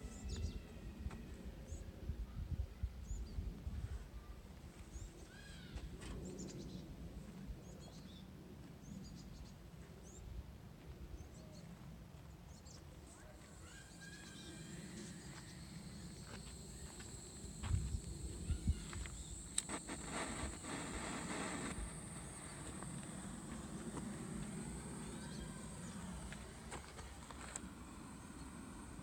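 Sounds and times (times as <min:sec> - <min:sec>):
faint high hiss: 0:14.3 - 0:29.0
low steady rumble: 0:14.8 - 0:29.0
clicks: 0:19.3 - 0:24.6.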